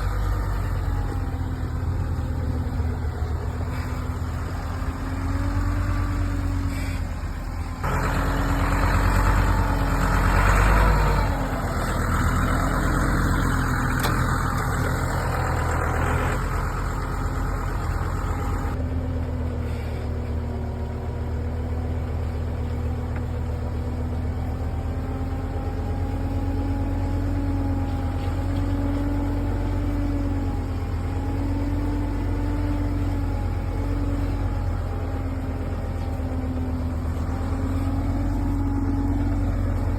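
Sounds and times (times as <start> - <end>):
diesel engine running: 0.0 - 39.9
loud noisy machine sound: 7.8 - 18.8.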